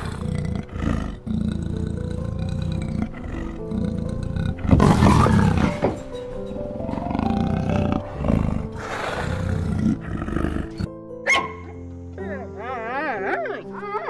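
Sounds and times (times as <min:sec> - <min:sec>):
big cat growling and roaring: 0:00.0 - 0:10.9
background music: 0:00.0 - 0:14.0.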